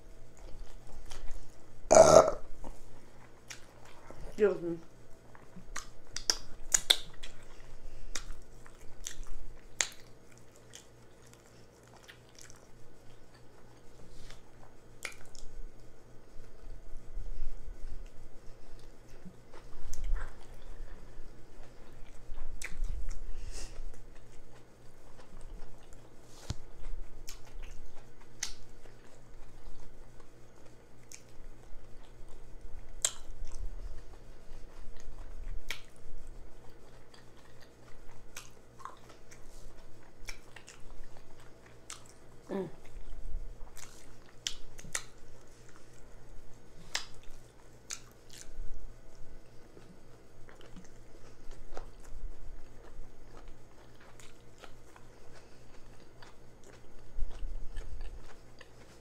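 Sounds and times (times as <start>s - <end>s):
close chewing: 0.3s - 1.6s, 2.6s - 4.5s, 5.2s - 15.5s, 18.0s - 46.2s, 46.8s - 59.0s
wet lip smacks and mouth clicks: 5.5s - 7.5s, 8.1s - 12.6s, 15.0s - 15.5s, 27.2s - 28.7s, 33.0s - 33.6s, 35.0s - 36.0s, 40.2s - 42.2s, 43.7s - 45.9s, 46.8s - 48.6s.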